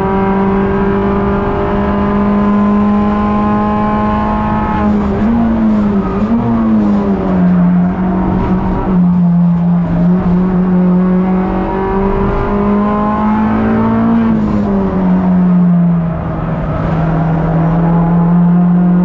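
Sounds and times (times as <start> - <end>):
race car engine accelerating: 0.0 - 19.0.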